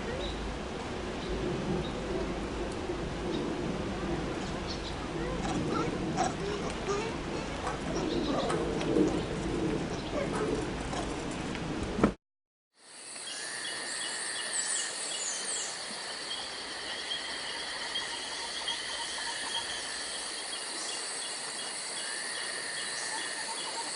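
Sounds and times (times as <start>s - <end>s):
insects chirping: 12.8s - 23.9s.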